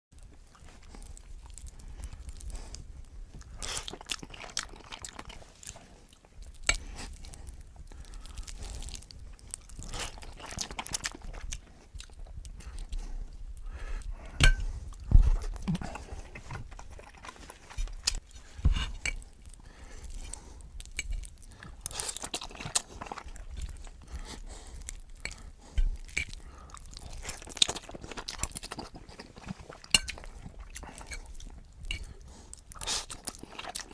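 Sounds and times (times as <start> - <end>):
person chewing crunchy food: 0.2 - 33.9
wet mouth clicks: 19.0 - 33.9.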